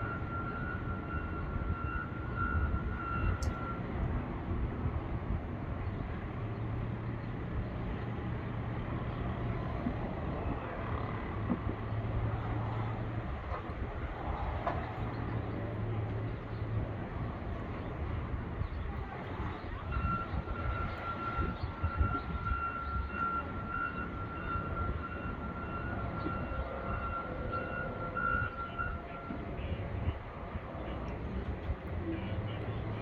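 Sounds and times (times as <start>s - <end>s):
vehicle engines running: 0.0s - 33.0s
wind noise: 8.8s - 33.0s.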